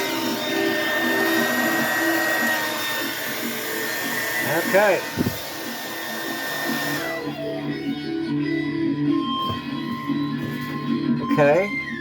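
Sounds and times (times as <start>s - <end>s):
hair dryer blowing: 0.0s - 7.9s
guitar music: 0.0s - 12.0s.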